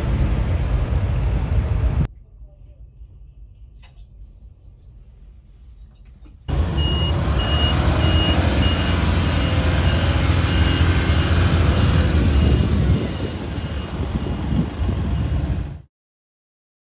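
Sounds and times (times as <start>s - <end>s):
reversing alarm beeping: 6.5s - 15.8s
truck engine rumbling: 6.5s - 15.9s.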